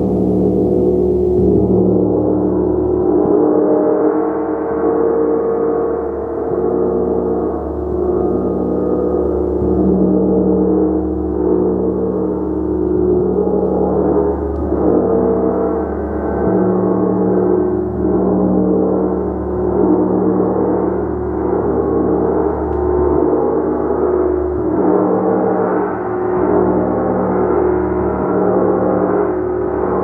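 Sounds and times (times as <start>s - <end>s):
gong playing: 0.0s - 2.2s.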